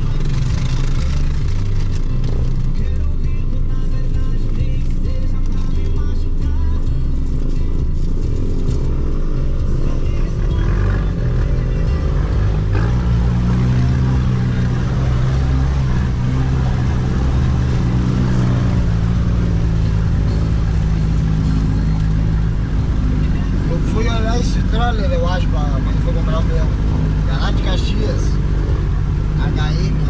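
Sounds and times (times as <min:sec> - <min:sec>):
off-road vehicle engine under load: 0:00.0 - 0:30.0.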